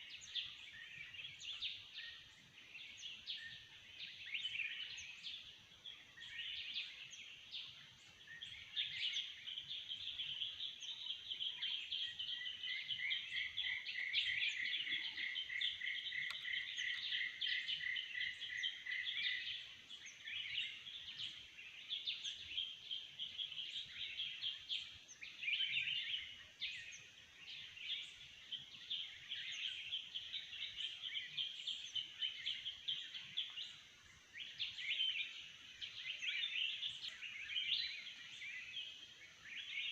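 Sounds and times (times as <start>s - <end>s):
forest birds chirping: 0.0s - 39.9s.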